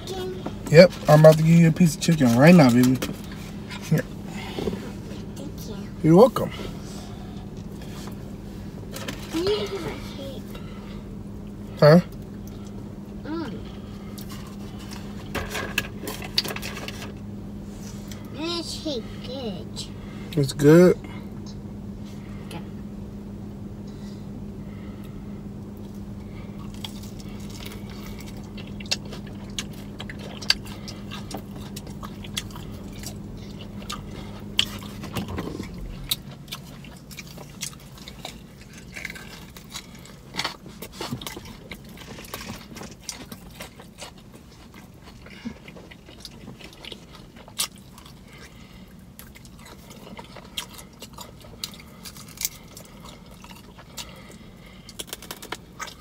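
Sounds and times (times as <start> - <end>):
steady low hum: 0.0 - 56.0
person chewing and lip-smacking: 25.7 - 56.0.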